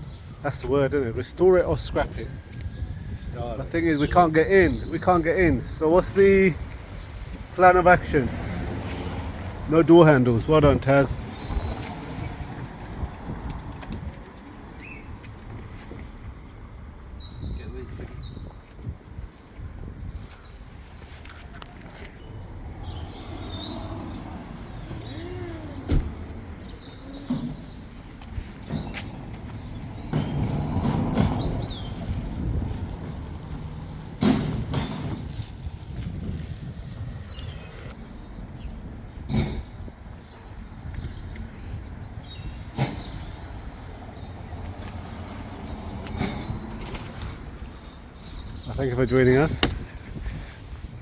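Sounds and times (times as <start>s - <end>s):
distant traffic rumble: 0.0s - 19.4s, 20.3s - 51.0s
birds chirping: 0.0s - 51.0s
birds chirping faintly: 9.5s - 32.8s.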